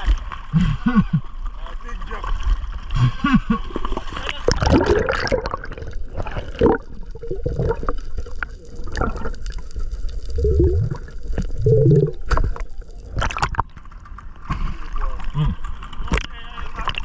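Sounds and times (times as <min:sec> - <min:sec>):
low muffled gurgles: 0:00.0 - 0:17.0
water sloshing and gurgling: 0:00.0 - 0:17.0
sharp water splashes: 0:04.0 - 0:08.2.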